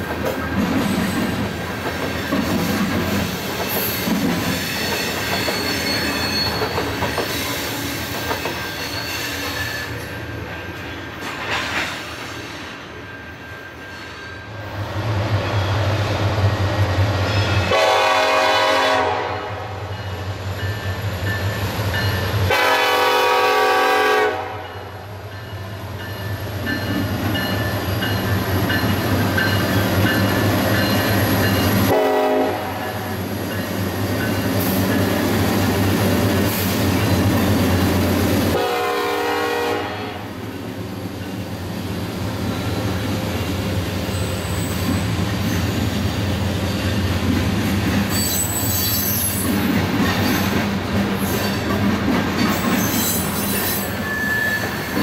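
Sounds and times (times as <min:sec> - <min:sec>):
diesel locomotive drone: 0:00.0 - 0:55.0
thin wheel squeal: 0:04.6 - 0:07.8, 0:08.4 - 0:10.1, 0:48.1 - 0:49.4, 0:52.8 - 0:55.0
locomotive air horn blasts: 0:17.7 - 0:19.9, 0:22.5 - 0:24.7, 0:31.9 - 0:33.0, 0:38.5 - 0:40.4.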